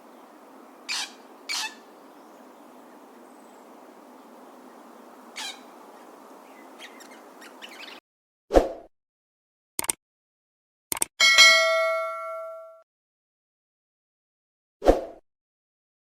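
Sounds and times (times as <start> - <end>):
parrot squawking: 0.9 - 1.9, 5.3 - 5.7, 6.8 - 8.0.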